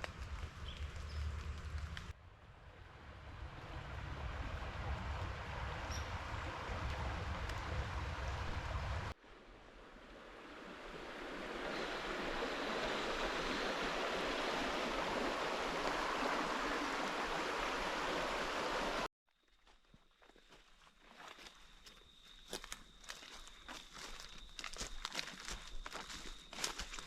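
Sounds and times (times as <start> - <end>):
low rumbling noise: 0.0 - 12.1
river water flowing: 2.9 - 19.1.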